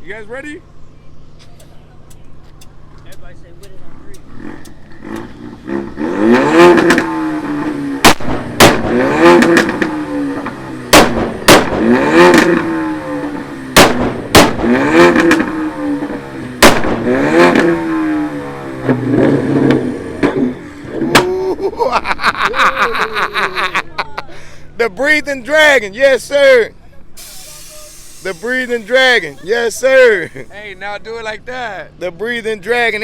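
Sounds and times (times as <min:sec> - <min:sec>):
car engine revving: 0:01.2 - 0:21.6, 0:27.2 - 0:31.5
exhaust cracks: 0:01.4 - 0:21.8, 0:27.2 - 0:31.4.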